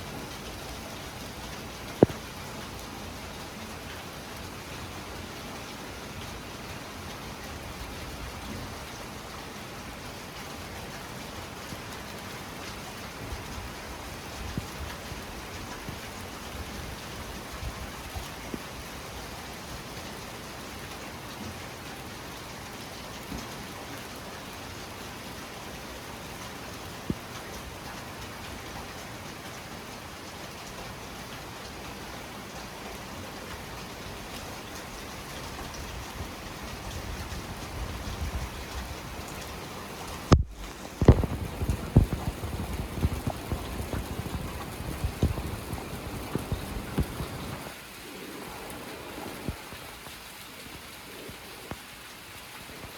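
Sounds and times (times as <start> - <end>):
heavy rain falling: 0.0 - 52.9
raindrops striking close by: 0.0 - 52.9
distant thunder rumbling: 40.4 - 47.8.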